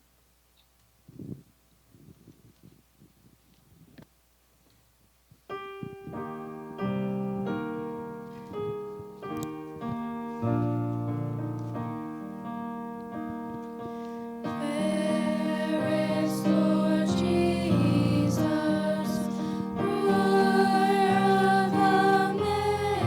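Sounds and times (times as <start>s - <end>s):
piano playing a hymn: 5.5s - 23.0s.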